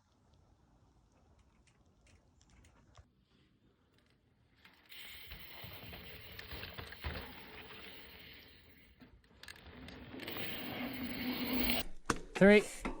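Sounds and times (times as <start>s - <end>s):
bike rattling and clicking: 4.6s - 11.8s
bike tyres on dirt trail: 4.6s - 11.8s.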